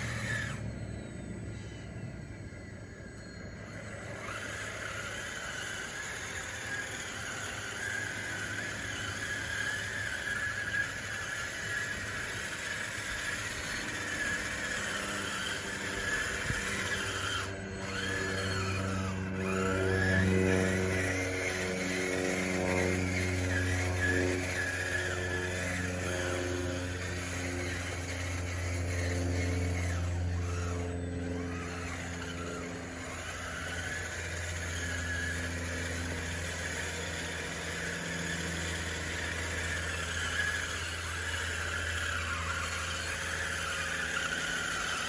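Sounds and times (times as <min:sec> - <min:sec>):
low hum: 0:00.0 - 0:45.0
toy bulldozer motors whining: 0:00.0 - 0:45.0.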